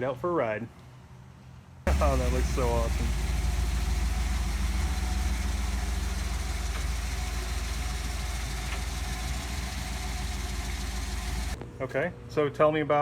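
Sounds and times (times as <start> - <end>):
car engine idling: 1.9 - 11.6.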